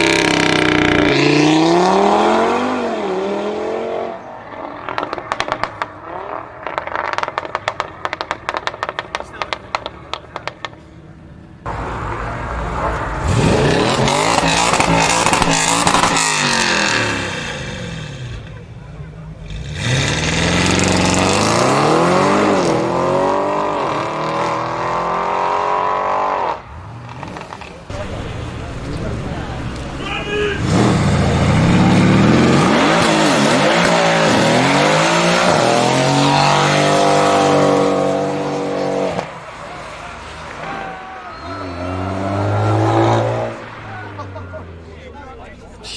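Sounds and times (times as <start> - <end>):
car engine revving hard: 0.0 - 5.6, 13.0 - 18.5, 19.3 - 39.3, 41.6 - 43.7.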